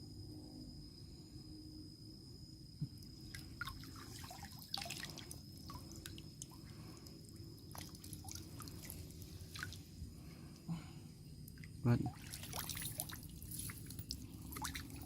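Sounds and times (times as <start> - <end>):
high-pitched whine: 0.0 - 15.0
water dripping and splashing: 11.5 - 15.0.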